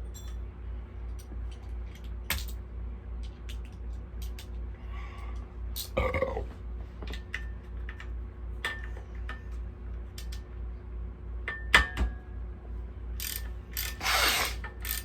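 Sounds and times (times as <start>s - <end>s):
metal tools clinking and knocking: 0.0s - 0.4s.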